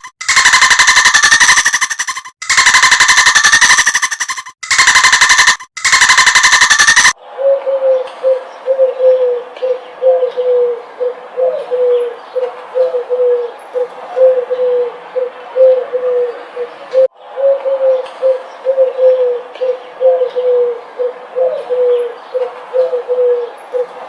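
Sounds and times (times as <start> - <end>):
pigeon cooing: 7.2 - 24.0.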